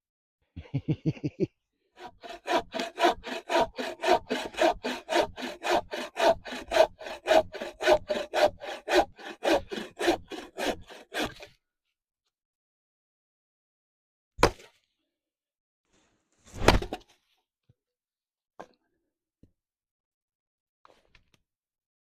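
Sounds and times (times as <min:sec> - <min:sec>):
hand saw cutting wood: 0:02.0 - 0:11.6.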